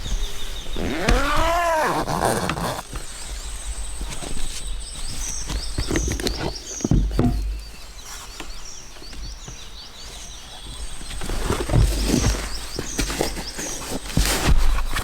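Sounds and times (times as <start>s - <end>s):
bird chirping: 0.0s - 14.0s
rustling: 0.0s - 15.0s
low thumps: 6.9s - 7.8s.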